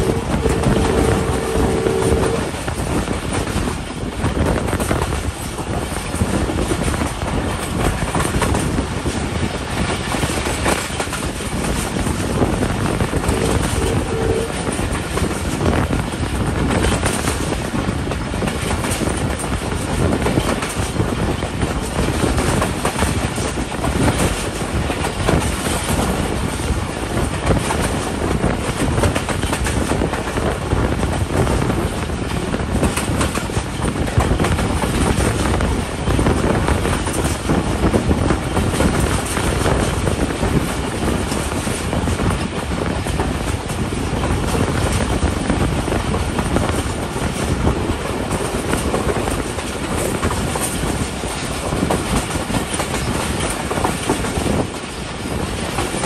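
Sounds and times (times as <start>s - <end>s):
two-tone train horn: 0.0s - 3.0s, 13.1s - 15.0s
rushing air: 0.0s - 16.5s
train wheels clickety-clack on rails: 0.0s - 56.0s.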